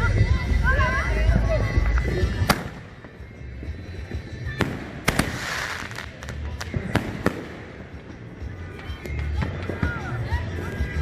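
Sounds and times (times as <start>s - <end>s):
fireworks bangs: 2.4s - 3.1s, 4.6s - 8.3s
fireworks crackling hiss: 4.5s - 8.3s.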